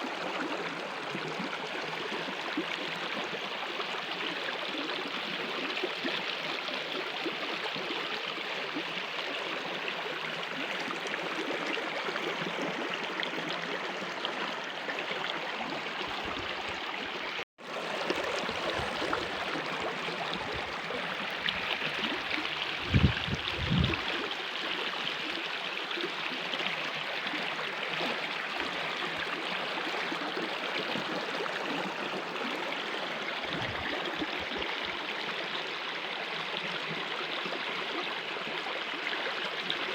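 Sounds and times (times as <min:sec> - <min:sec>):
stream water rushing: 0:08.4 - 0:39.9.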